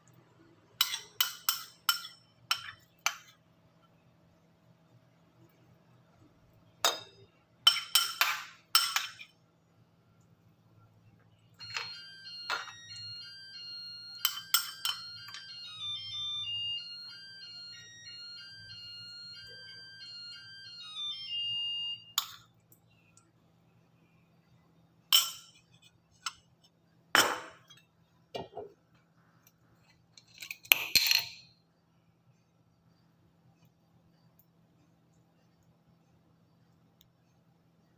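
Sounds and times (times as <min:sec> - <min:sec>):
dishes and utensils clinking: 0:00.8 - 0:03.3, 0:06.8 - 0:09.4, 0:14.2 - 0:15.4, 0:25.1 - 0:26.4
electronic ringtone melody: 0:11.6 - 0:22.2.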